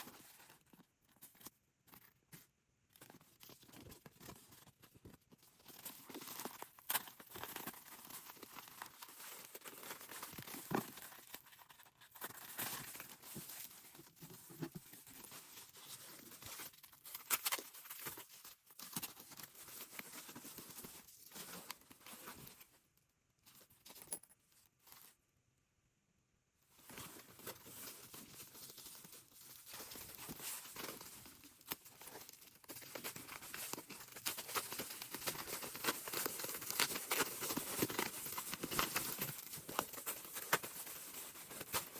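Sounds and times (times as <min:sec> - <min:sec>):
packaging crinkling and tearing: 0:05.6 - 0:14.4, 0:15.0 - 0:22.3, 0:27.1 - 0:41.9.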